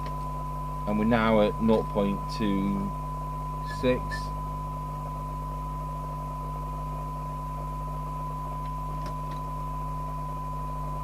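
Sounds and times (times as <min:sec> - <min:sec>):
low steady hum: 0:00.0 - 0:11.0
radio test tone: 0:00.8 - 0:04.9.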